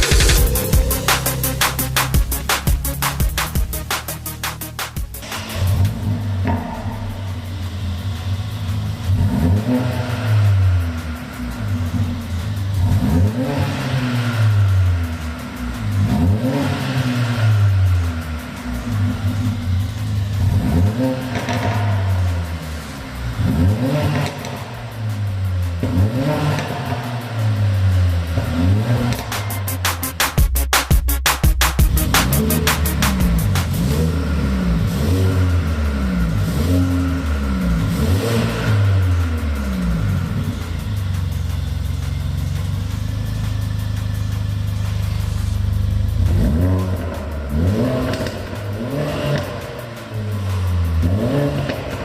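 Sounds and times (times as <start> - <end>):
car engine revving loudly: 0.0 - 30.4, 31.6 - 52.0.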